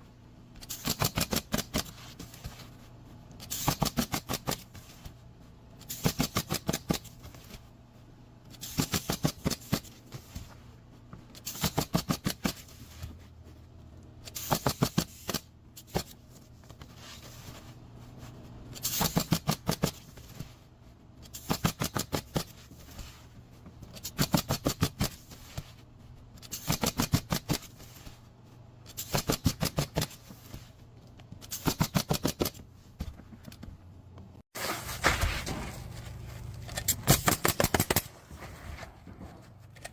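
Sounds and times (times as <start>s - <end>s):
steady low hum: 0.0s - 26.6s, 32.6s - 39.9s
rapid sharp mechanical impacts: 0.6s - 2.0s, 3.4s - 4.9s, 28.9s - 30.5s, 35.0s - 38.2s.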